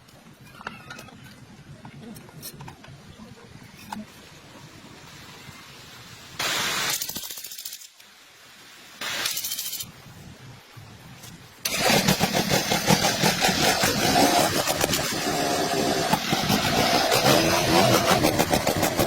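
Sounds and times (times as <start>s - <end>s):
engine starter cranking: 11.7s - 15.4s.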